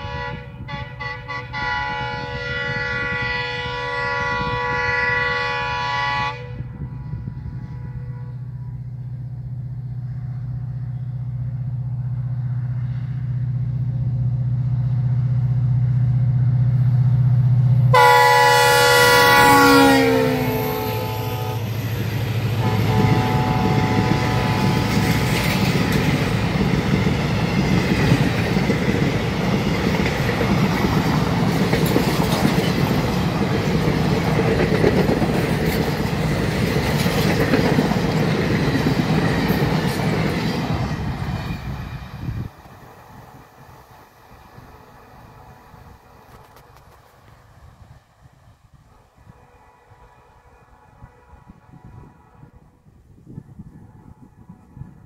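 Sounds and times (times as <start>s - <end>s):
train horn blast: 0.0s - 9.4s, 17.9s - 26.2s, 48.9s - 55.0s
train coaches rumbling past: 0.0s - 55.0s
locomotive low drone: 1.4s - 55.0s
wheel clatter over rail joints: 24.9s - 41.8s.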